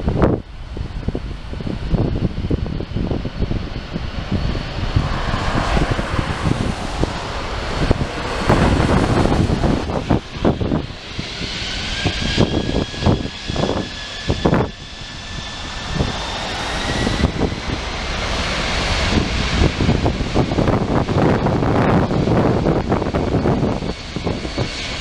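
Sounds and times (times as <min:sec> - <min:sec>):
jet engine whine rising: 0:00.0 - 0:25.0
jet engines rumbling: 0:00.0 - 0:25.0.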